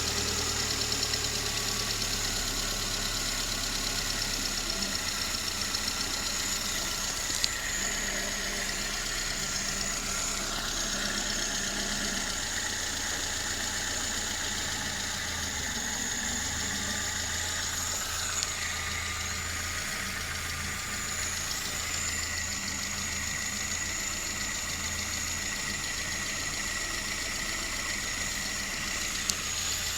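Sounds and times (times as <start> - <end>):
car engine idling: 0.0 - 29.9
engine knocking: 0.0 - 29.9.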